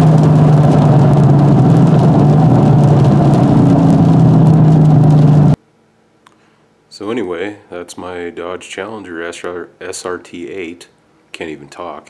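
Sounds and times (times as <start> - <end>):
car engine cruising: 0.0 - 5.6
higher engine tone: 0.0 - 5.6.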